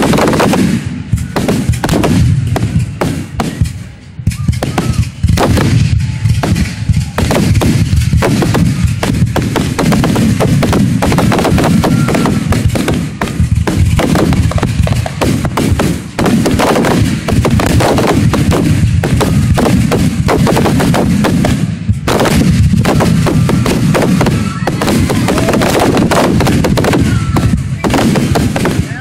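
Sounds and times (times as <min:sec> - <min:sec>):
fireworks bursting: 0:00.0 - 0:29.0.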